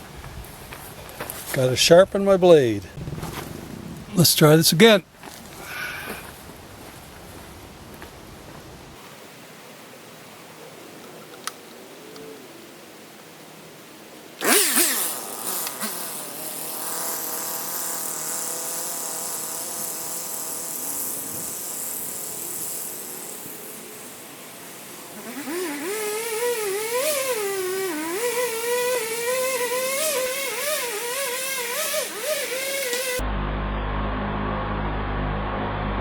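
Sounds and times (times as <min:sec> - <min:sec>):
chainsaw revving and cutting wood: 0:14.4 - 0:33.2.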